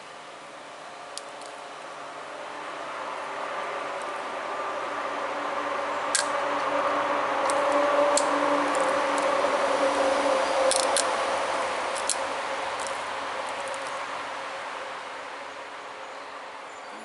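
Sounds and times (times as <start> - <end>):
steady droning hum: 0.0 - 17.0.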